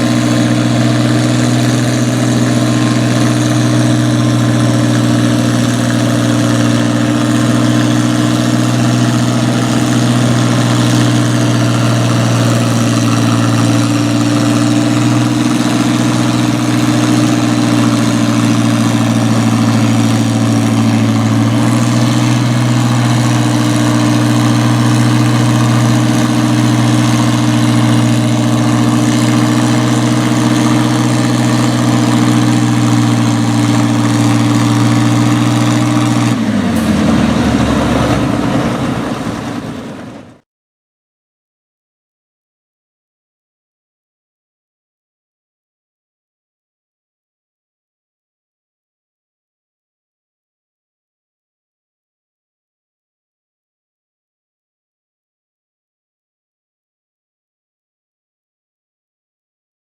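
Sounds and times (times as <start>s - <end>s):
tractor engine running: 0.0s - 40.4s.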